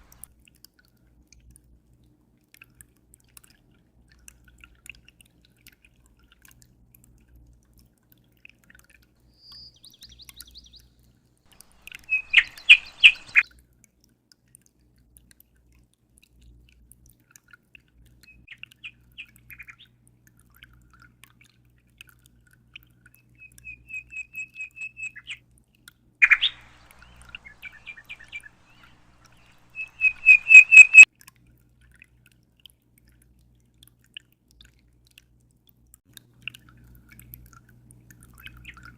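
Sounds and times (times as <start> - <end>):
songbird chirping phrases: 9.4 - 10.9, 11.5 - 13.4, 26.2 - 31.0
bird sharp single call: 11.6 - 13.4, 26.2 - 31.0.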